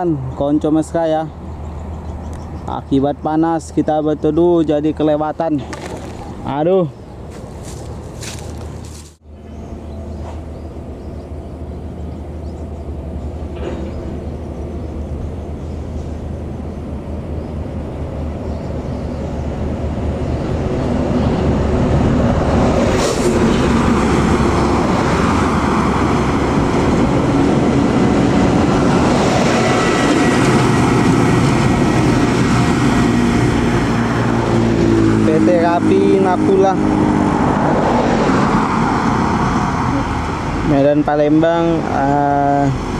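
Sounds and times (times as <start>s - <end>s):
diesel bus engine: 0.0s - 42.9s
tyre noise: 7.2s - 9.2s.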